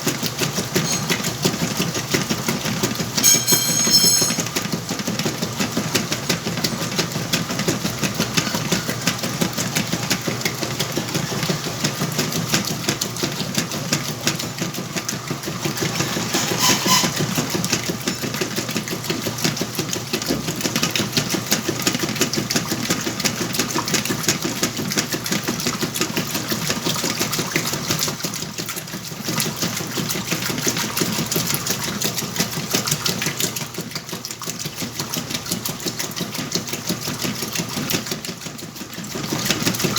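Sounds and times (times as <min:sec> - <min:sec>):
washing machine clattering: 0:00.0 - 0:39.9.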